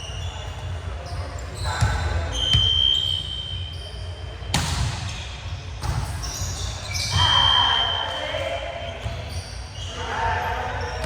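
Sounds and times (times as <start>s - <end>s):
referee's whistle blast: 2.3s - 3.8s, 6.9s - 8.2s.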